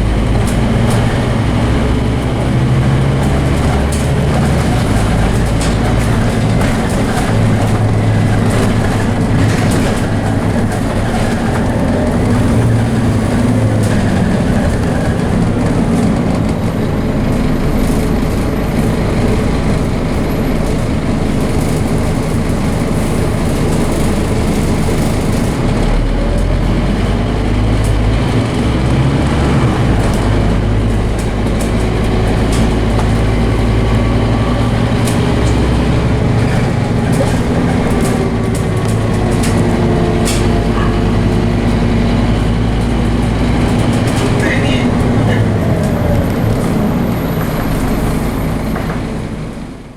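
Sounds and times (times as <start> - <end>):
bus diesel engine: 0.0 - 49.9
clicks and rattles: 29.7 - 46.0.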